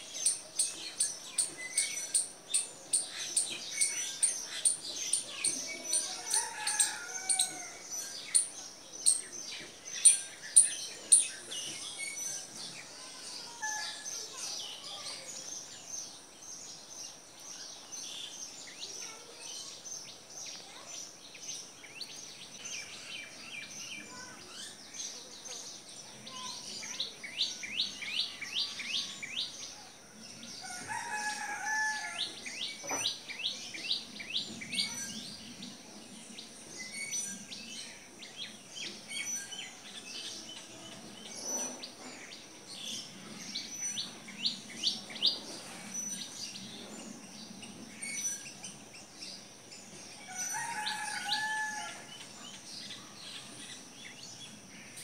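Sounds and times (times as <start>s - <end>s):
birds chirping and singing: 0.0s - 55.0s.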